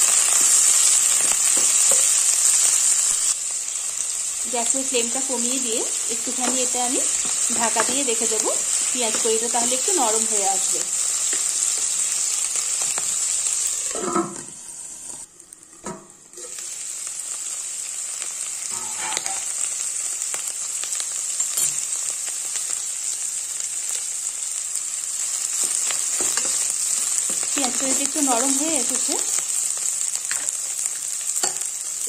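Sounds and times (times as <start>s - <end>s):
onion sizzling in hot oil: 0.0s - 32.0s.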